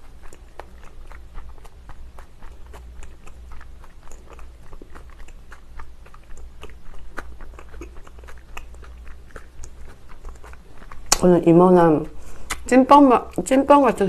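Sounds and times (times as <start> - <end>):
person chewing dumpling: 0.0 - 11.2.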